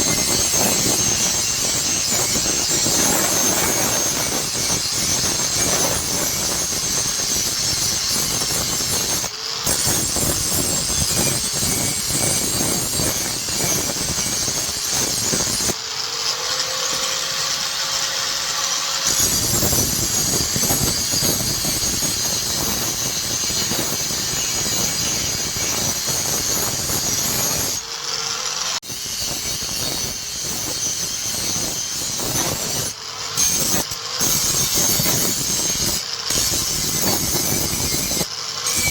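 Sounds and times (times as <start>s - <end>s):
electric grinder grinding steel: 0.0s - 38.9s
grinder motor whine: 0.0s - 38.9s.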